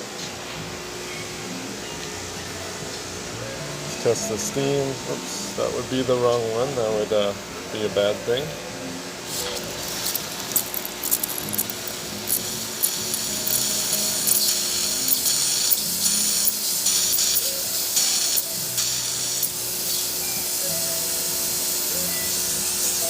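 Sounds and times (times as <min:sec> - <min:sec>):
espresso machine steam wand hissing: 0:09.2 - 0:23.0.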